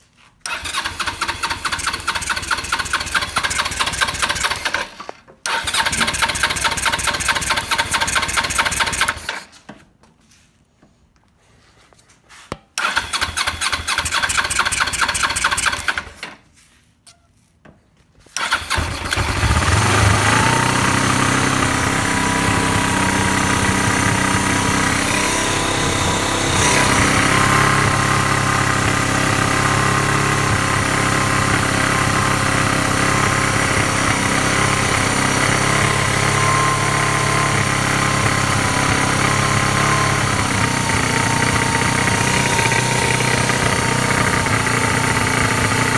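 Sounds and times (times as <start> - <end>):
motorcycle starter cranking: 0.5 - 9.5, 12.8 - 16.4, 18.4 - 45.9
motorcycle engine idling: 0.6 - 4.7, 18.4 - 45.9.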